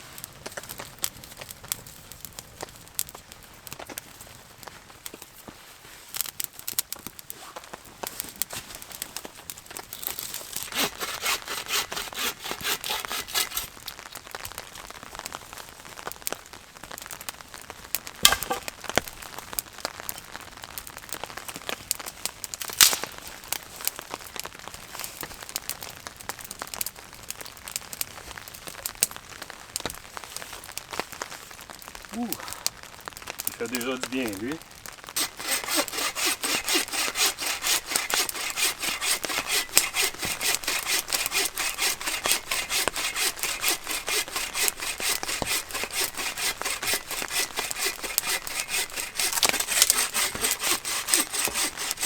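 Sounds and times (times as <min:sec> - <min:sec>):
kindling fire crackling and popping: 0:00.0 - 0:52.0.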